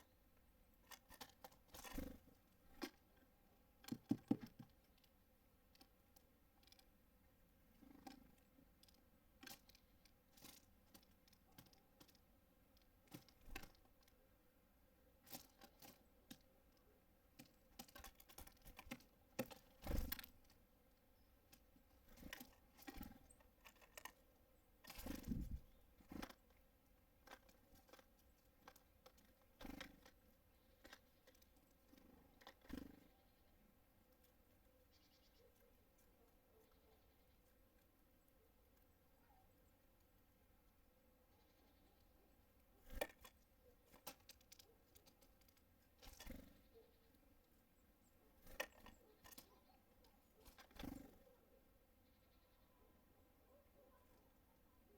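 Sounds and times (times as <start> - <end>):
birds pecking at a feeder: 0.0 - 54.9.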